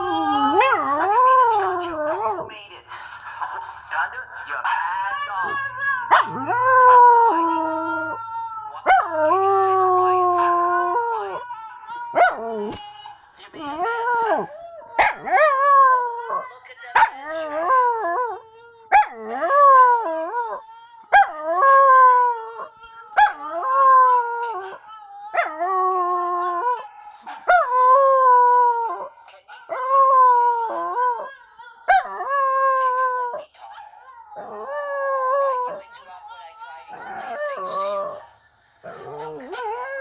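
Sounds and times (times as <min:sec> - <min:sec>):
dog howling: 0:05.4 - 0:12.8, 0:36.9 - 0:40.0.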